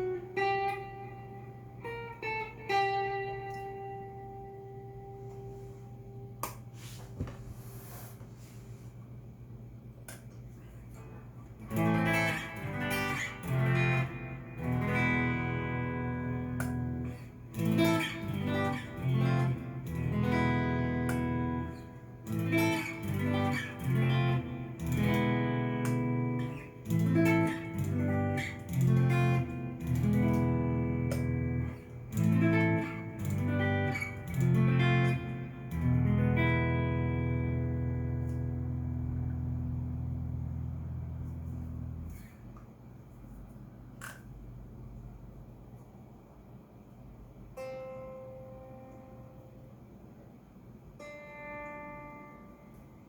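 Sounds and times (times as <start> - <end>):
electric guitar chords: 0.0 - 6.8, 10.8 - 42.7, 47.5 - 49.8, 50.9 - 53.0.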